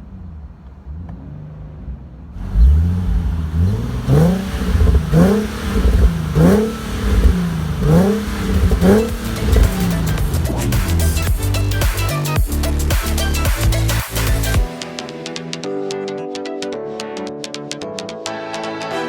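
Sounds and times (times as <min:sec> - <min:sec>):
car engine revving: 0:00.0 - 0:12.2.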